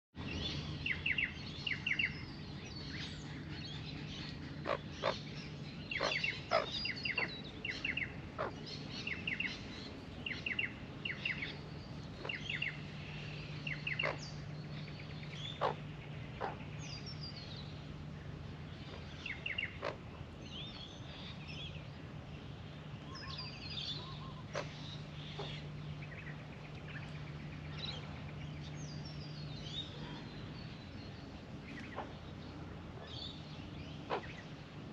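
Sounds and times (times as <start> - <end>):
magpies warbling: 3.4 - 9.6, 13.6 - 14.5, 15.3 - 17.3, 23.2 - 26.2, 33.9 - 34.4.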